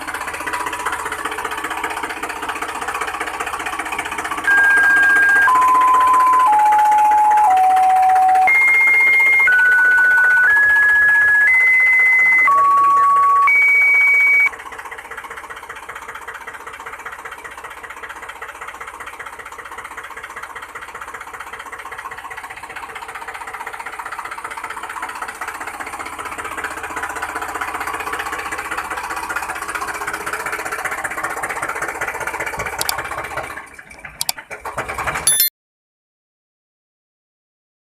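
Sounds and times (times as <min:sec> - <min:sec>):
electronic beep tones: 0:04.5 - 0:14.5, 0:35.3 - 0:35.5.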